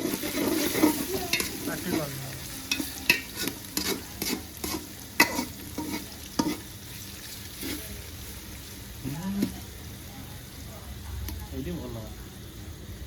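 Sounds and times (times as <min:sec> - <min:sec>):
spatula scraping a pan: 0:00.0 - 0:08.3
food sizzling in oil: 0:00.0 - 0:13.0.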